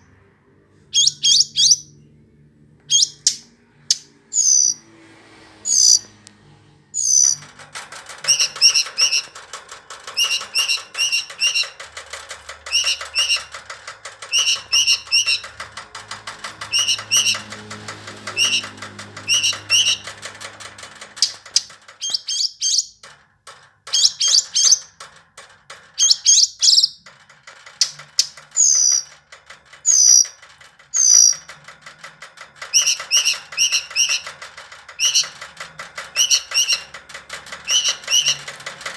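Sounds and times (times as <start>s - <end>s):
bird chirping and whistling: 1.0s - 1.9s, 2.9s - 3.4s, 4.3s - 4.8s, 7.0s - 7.4s, 22.0s - 22.9s, 36.2s - 36.8s
fast ticking chatter: 7.1s - 22.1s, 24.0s - 38.9s.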